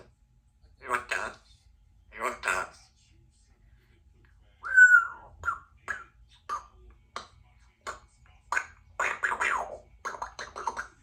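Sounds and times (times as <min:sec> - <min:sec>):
parrot whistled call: 0:04.6 - 0:05.7.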